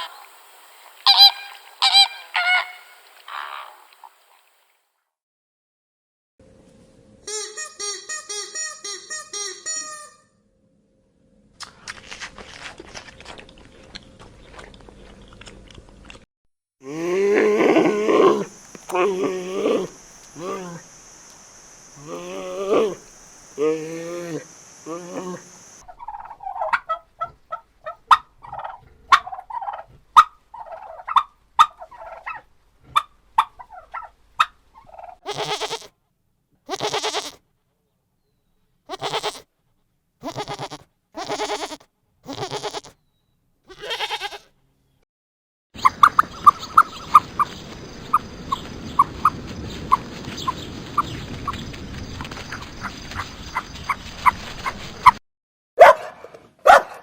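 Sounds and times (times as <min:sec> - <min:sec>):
steady hiss: 0:00.0 - 0:04.6, 0:17.9 - 0:25.8
rapid short high calls: 0:01.0 - 0:03.9, 0:18.2 - 0:25.8
farm animal calls: 0:01.1 - 0:04.0, 0:07.3 - 0:10.2, 0:17.3 - 0:35.9, 0:36.7 - 0:37.4, 0:38.9 - 0:39.4, 0:40.2 - 0:42.9, 0:43.7 - 0:44.5, 0:45.8 - 0:51.6.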